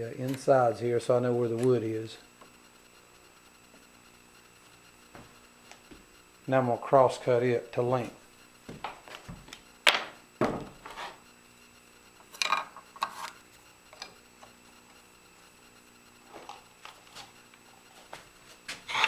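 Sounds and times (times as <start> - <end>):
wood knocking on work surface: 8.7 - 10.8.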